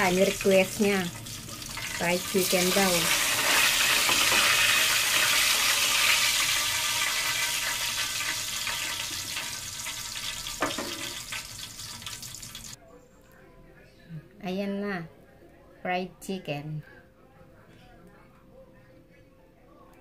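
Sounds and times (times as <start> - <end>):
chicken sizzling in hot oil: 0.0 - 12.8.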